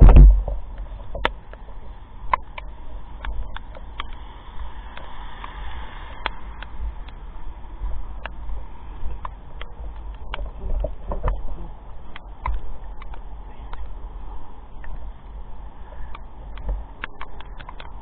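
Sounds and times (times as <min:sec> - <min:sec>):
low rumble: 0:00.0 - 0:01.5
steady rain falling: 0:00.0 - 0:18.0.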